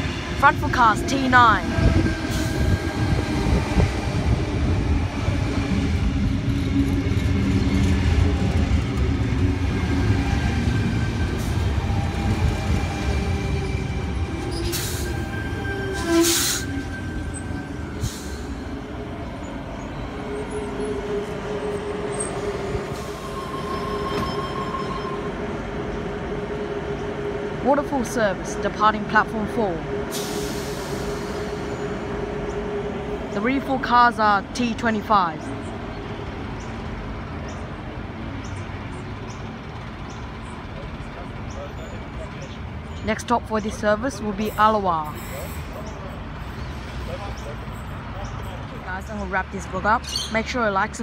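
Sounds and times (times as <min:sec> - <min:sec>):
electric train rumbling and whining: 0:00.0 - 0:51.0
stopped train humming: 0:00.0 - 0:51.0.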